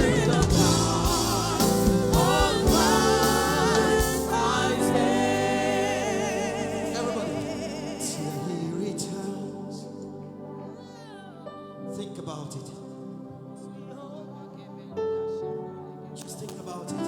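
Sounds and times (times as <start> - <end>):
band with drums: 0.0 - 4.9
voices singing gospel music: 0.0 - 17.0.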